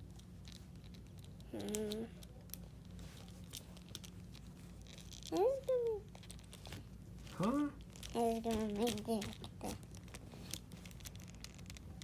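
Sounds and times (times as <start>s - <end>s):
plastic toy clicks and rustles: 7.8s - 12.0s.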